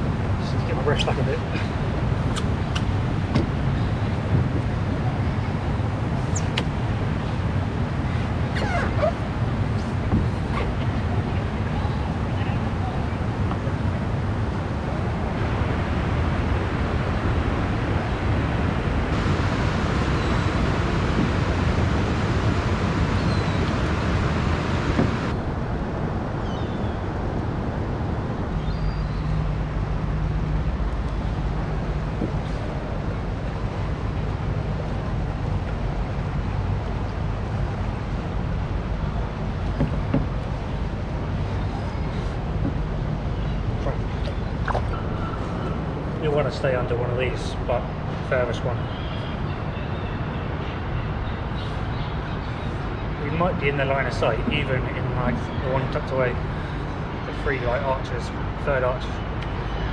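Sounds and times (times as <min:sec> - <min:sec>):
river water rushing: 0:00.0 - 0:26.2
wind: 0:00.0 - 0:59.9
low motor hum: 0:01.6 - 0:25.5.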